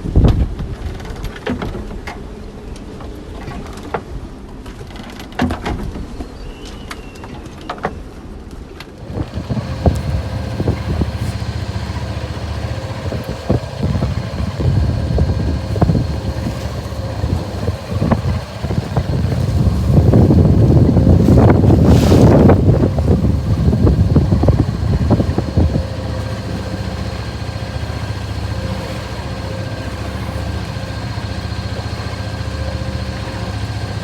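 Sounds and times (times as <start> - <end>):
boat knocking and rattling: 0.0 - 6.3, 8.9 - 34.0
wind buffeting microphone: 9.0 - 34.0.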